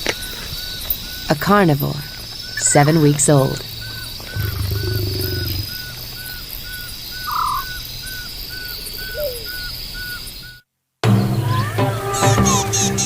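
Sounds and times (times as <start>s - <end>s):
high insect drone: 0.0s - 10.6s
short chirping call: 3.8s - 10.6s
low growling sound: 4.3s - 5.8s.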